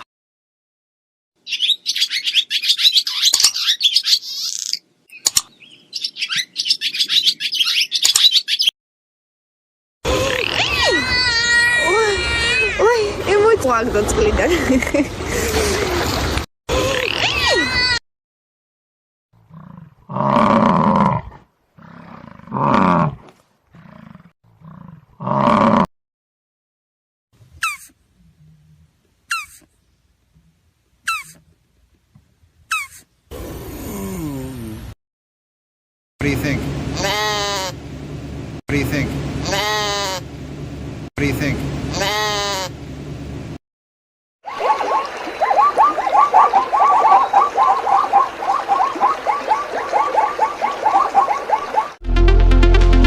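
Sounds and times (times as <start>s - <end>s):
small birds chirping: 1.4s - 8.7s, 29.3s - 30.0s, 31.0s - 31.4s, 32.7s - 33.1s
sharp clicks: 5.2s - 5.5s, 8.0s - 8.3s
large animal calling: 31.1s - 31.4s, 37.0s - 37.8s, 39.4s - 40.3s, 41.9s - 42.7s, 44.5s - 52.0s.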